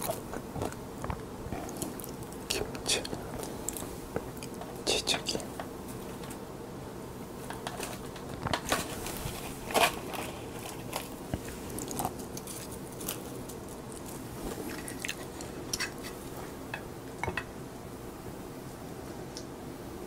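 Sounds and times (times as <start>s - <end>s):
chewing crisp food: 0.0s - 2.4s, 9.6s - 16.3s.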